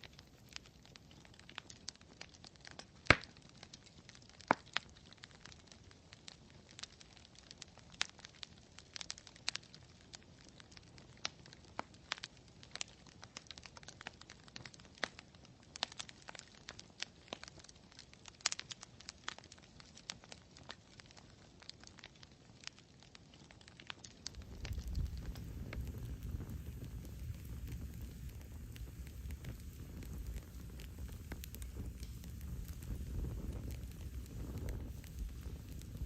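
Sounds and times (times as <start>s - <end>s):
campfire crackling: 0.0s - 36.0s
faint low rumble: 24.2s - 36.0s.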